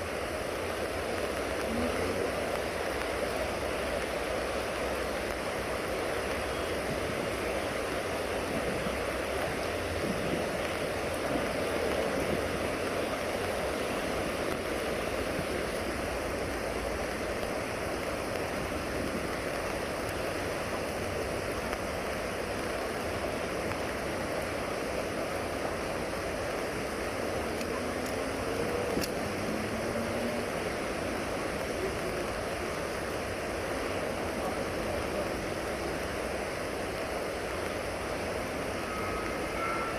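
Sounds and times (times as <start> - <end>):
downpour: 0.0 - 39.9
floodwater rushing: 0.0 - 39.9.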